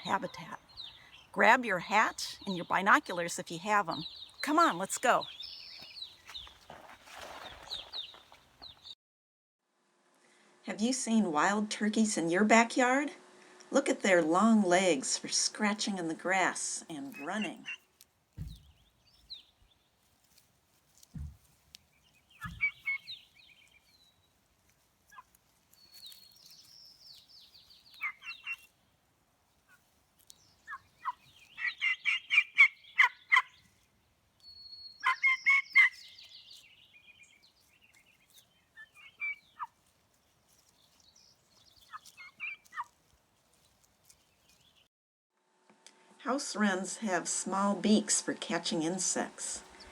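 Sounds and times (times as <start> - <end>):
turkeys gobbling: 22.4 - 23.1, 30.6 - 33.6, 35.0 - 36.0, 38.7 - 39.8, 41.8 - 43.0.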